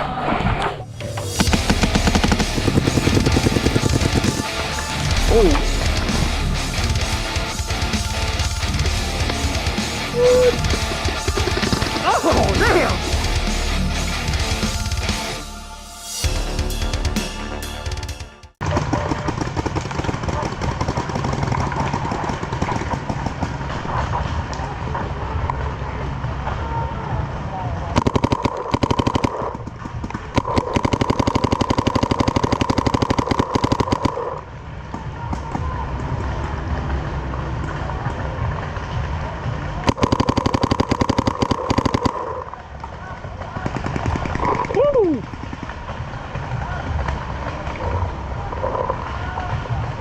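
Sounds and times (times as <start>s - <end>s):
intro music: 1.0s - 18.5s
steady low rumble: 1.2s - 11.3s
paintball markers firing: 1.4s - 5.6s, 10.7s - 12.2s, 18.6s - 23.8s, 28.0s - 34.4s, 39.9s - 42.4s, 43.5s - 45.9s.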